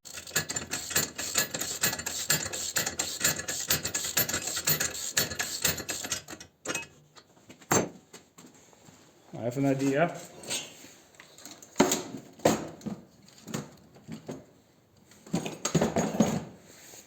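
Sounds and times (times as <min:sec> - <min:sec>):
ratchet wrench clicking: 0:00.1 - 0:06.4.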